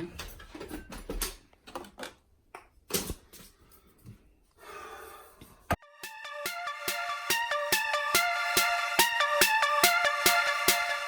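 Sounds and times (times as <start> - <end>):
electronic music with steady beat: 5.8 - 11.0.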